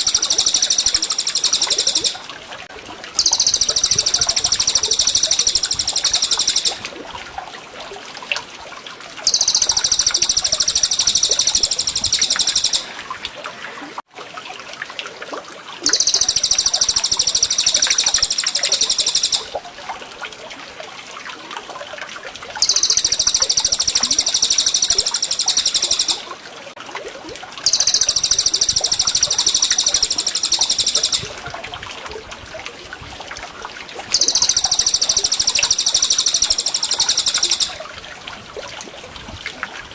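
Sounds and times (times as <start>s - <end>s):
scattered bird chirps: 0.0s - 2.2s, 3.2s - 6.8s, 9.3s - 12.9s, 15.8s - 19.6s, 22.6s - 26.3s, 27.7s - 31.3s, 34.1s - 37.8s
water trickling: 0.0s - 2.4s, 3.2s - 13.8s, 15.8s - 32.4s.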